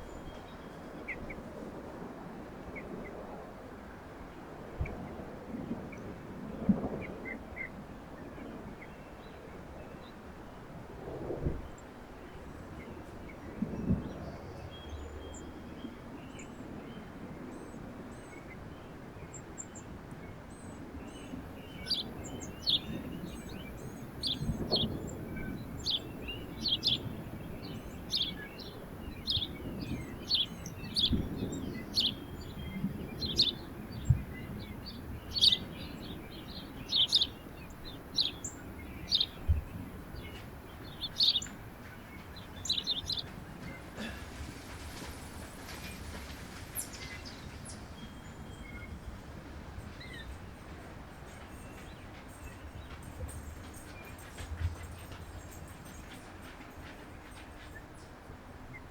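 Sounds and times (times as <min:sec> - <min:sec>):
steady low background noise: 0:00.0 - 0:58.9
small songbird chirping: 0:20.6 - 0:43.9.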